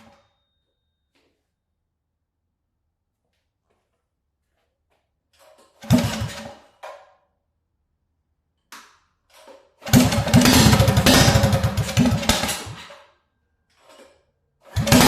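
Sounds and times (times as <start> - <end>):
small engine revving: 14.8 - 15.0.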